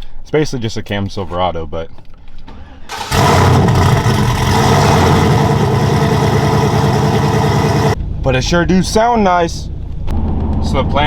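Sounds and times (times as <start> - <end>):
truck engine running loud: 2.9 - 8.0.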